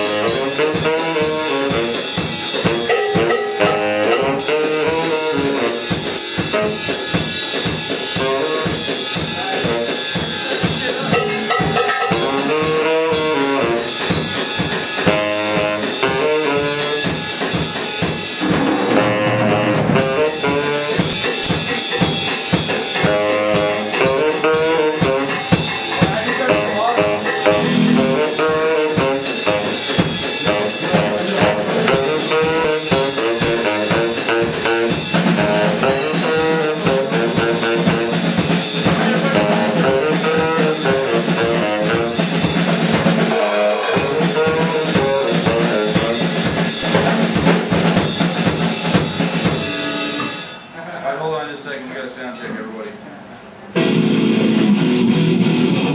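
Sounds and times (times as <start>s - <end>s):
drum kit beat: 0.0s - 50.8s, 53.8s - 55.9s
melodic lead line: 2.6s - 5.2s, 11.1s - 13.4s, 18.4s - 20.8s, 21.6s - 29.1s, 53.8s - 55.9s.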